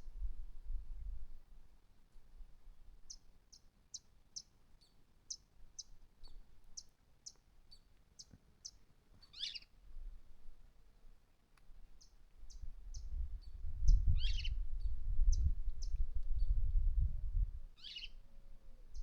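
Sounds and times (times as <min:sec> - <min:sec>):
birds chirping faintly: 0:03.1 - 0:09.7.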